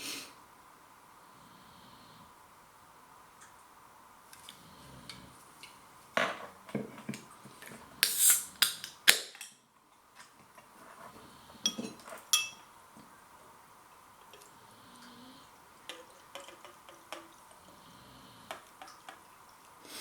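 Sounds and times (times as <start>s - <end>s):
can opening hiss: 8.0s - 9.5s
can being handled: 15.8s - 17.5s.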